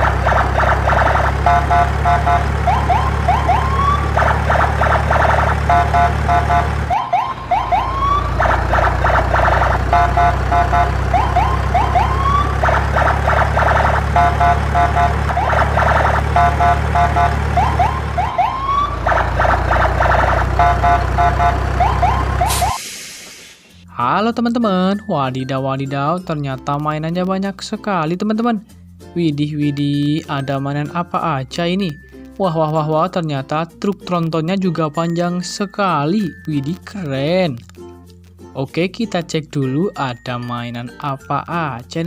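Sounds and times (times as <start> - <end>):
steady low drone: 0.0 - 22.6
electronic warbling siren beeps: 0.0 - 22.9.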